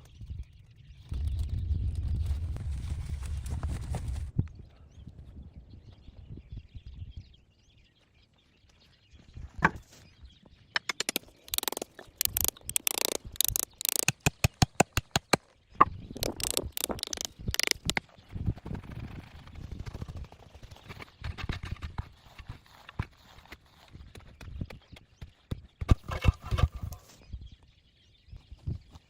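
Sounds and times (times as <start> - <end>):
rustling forest litter: 2.2 - 4.3, 22.2 - 24.0
sticks snapping and cracking: 10.8 - 15.3, 16.2 - 18.0.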